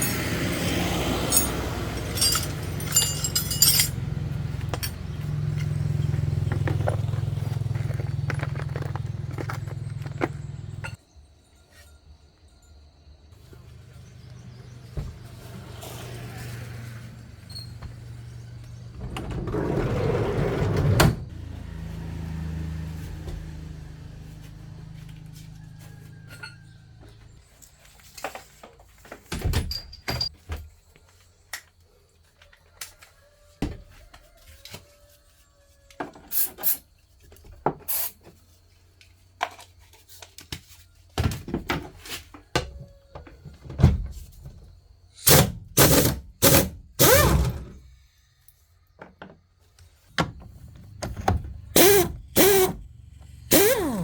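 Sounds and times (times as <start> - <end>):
metal car parts clunking: 0.0 - 7.0.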